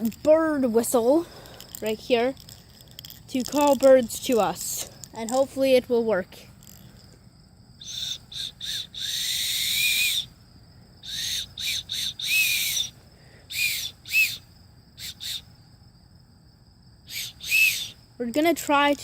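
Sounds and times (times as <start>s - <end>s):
bird-call whistle toots: 7.8s - 10.4s, 11.0s - 15.5s, 17.1s - 18.0s.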